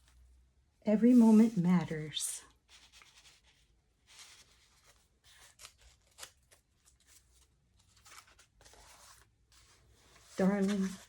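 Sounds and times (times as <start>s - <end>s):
paper pages rustling: 1.0s - 11.0s.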